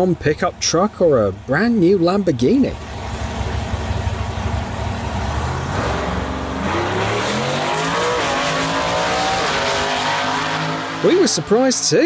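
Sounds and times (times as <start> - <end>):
car engine revving: 2.8 - 11.8.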